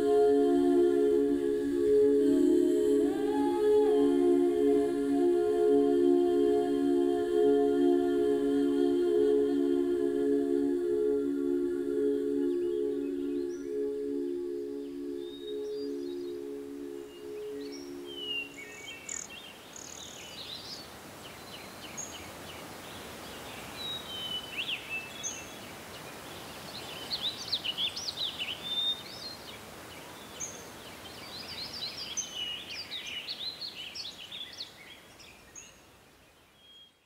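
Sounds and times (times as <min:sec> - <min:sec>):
steady outdoor hiss: 0:00.0 - 0:37.0
songbirds chirping and trilling: 0:12.2 - 0:37.0.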